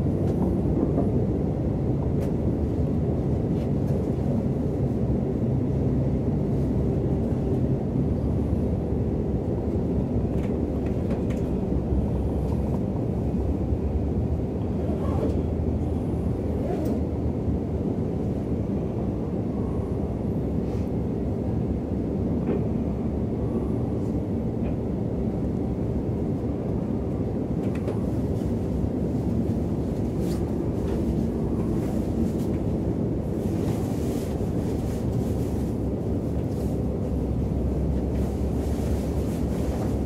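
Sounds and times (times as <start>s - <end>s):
train rumble inside coach: 0.0s - 40.0s.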